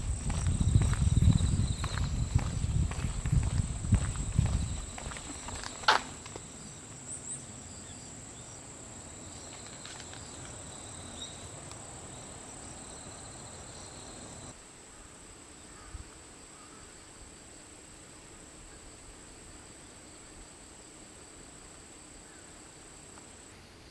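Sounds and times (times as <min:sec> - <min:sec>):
insects chirring: 0:00.0 - 0:14.6.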